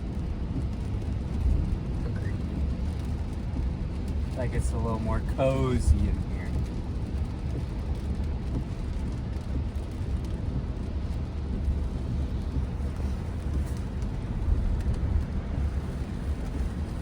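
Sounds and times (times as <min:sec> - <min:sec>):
road and tyre rumble: 0:00.0 - 0:17.0.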